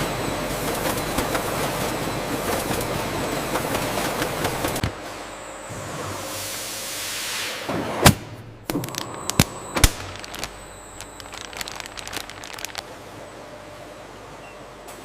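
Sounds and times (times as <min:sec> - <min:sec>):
sharp cracks and knocks: 0:08.7 - 0:12.8.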